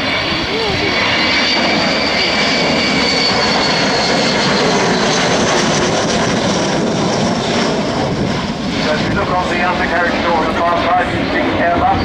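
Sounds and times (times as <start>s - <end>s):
high whine: 0.0s - 5.8s
jet engines roaring: 0.0s - 12.0s.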